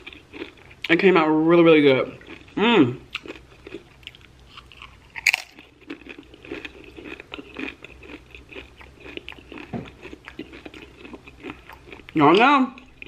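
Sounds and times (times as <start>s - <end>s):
chewing tortilla chip: 0.0s - 1.1s, 2.0s - 13.0s
loud sharp crunch: 4.6s - 5.7s.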